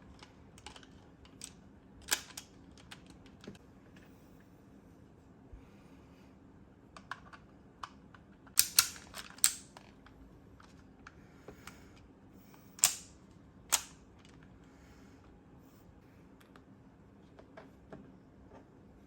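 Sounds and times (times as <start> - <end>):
plastic parts clicking and snapping: 0.1 - 3.6, 7.0 - 10.8, 12.8 - 14.4.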